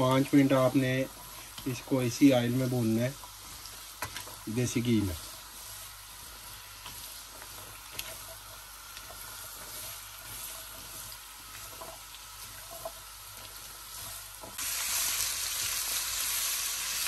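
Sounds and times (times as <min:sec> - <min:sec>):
spatula stirring and scraping: 0:00.0 - 0:15.7
carrots sizzling in a wok: 0:00.0 - 0:17.0.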